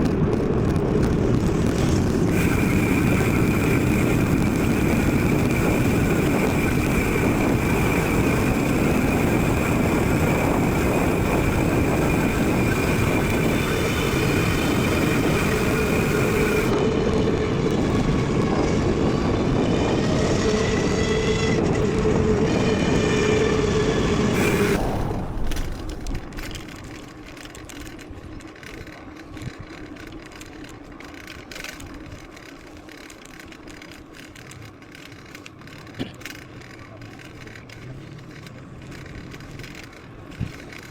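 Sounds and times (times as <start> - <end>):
wind on microphone: 0.0 - 28.4
bike tyres rumbling over ground: 0.0 - 40.9
steady whine: 0.0 - 40.9.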